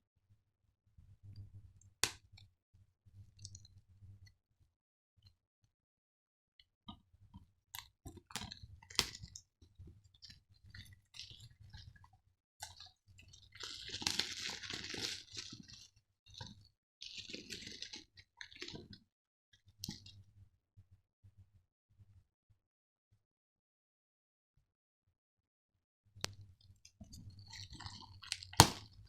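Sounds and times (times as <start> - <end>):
plastic wrapping crinkling and tearing: 13.6 - 18.9.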